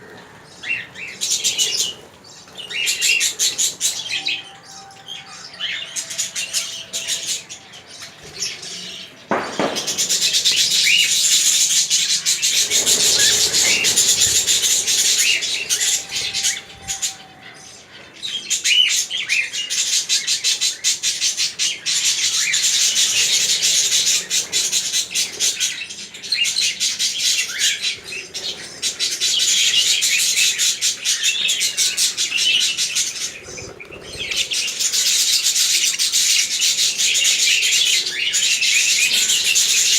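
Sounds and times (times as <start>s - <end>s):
small birds chirping: 0.0s - 39.9s
single knock: 9.3s - 10.3s.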